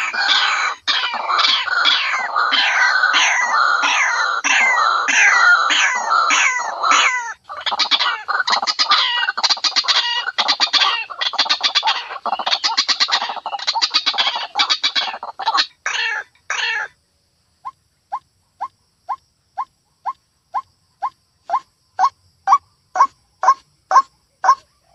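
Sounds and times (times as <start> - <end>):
bird stuttering chatter: 0.0 - 16.2
bird harsh downward calls: 0.0 - 17.0, 17.6 - 24.7.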